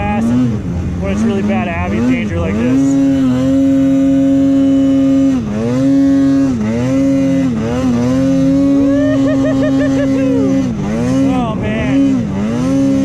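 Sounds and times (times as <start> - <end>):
snowmobile engine running hard: 0.0 - 13.0.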